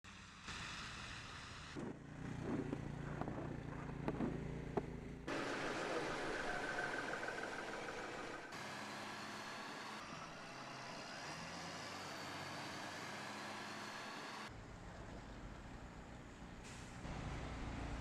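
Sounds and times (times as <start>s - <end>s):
hiss of passing traffic: 0.1s - 2.2s
low engine rumble: 1.8s - 8.6s.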